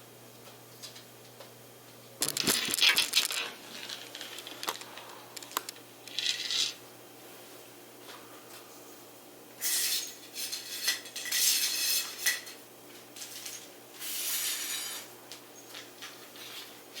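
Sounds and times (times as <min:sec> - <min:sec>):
hard objects clinking and scraping: 0:02.2 - 0:06.8, 0:09.6 - 0:12.6, 0:13.2 - 0:15.1.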